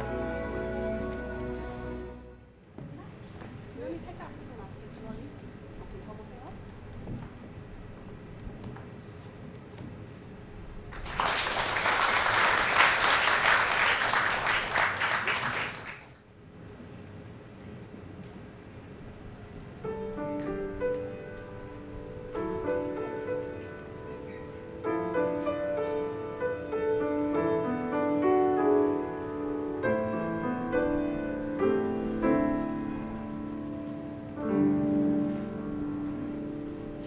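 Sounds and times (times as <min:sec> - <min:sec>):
classical piano piece: 0:19.8 - 0:37.0.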